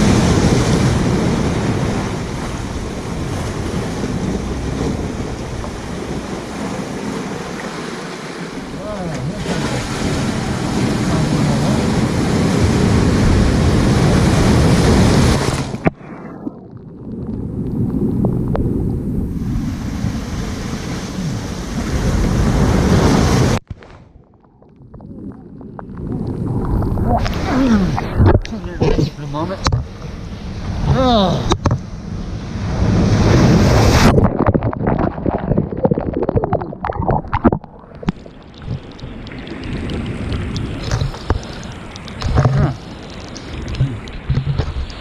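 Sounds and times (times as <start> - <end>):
wind buffeting microphone: 0.0 - 7.8
ocean waves breaking: 0.0 - 24.3, 25.0 - 45.0
water splashing and gurgling: 0.0 - 45.0
wind rumbling on microphone: 0.0 - 45.0.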